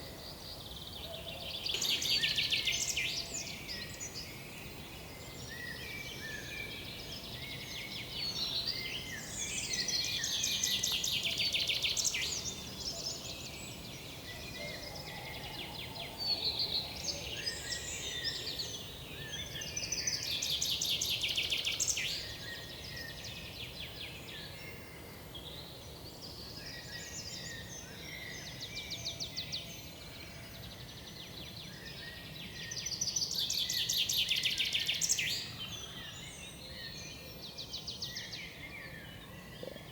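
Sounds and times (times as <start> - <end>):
birds singing and calling: 0.0 - 30.0
low steady background noise: 0.0 - 39.9.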